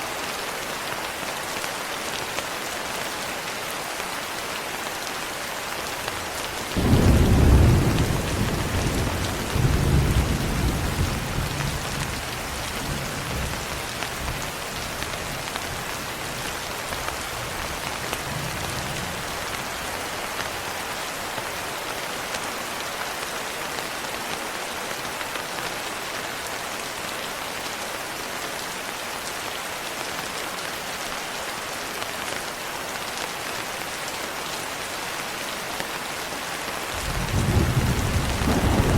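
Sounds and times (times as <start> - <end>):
steady rain falling: 0.0 - 38.9
thunder rumbling: 6.8 - 12.2, 37.0 - 38.9.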